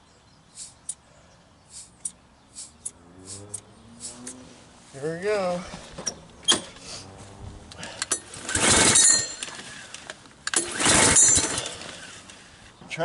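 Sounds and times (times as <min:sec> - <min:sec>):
lawn mower pull-starter cranking: 0:07.8 - 0:12.5.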